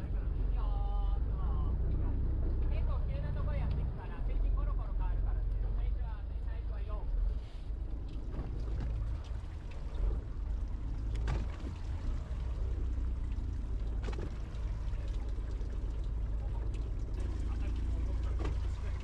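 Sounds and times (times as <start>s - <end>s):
steady low rumble: 0.0s - 19.0s
water pouring and splashing: 7.9s - 19.0s.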